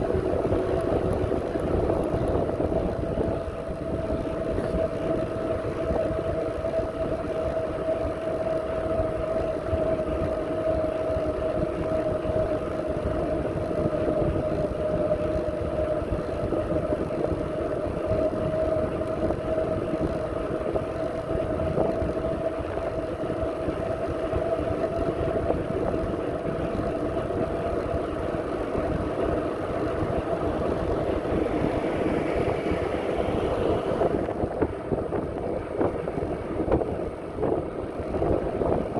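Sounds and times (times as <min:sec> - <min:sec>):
wind buffeting microphone: 0:00.0 - 0:38.9
steady whine: 0:25.8 - 0:38.9.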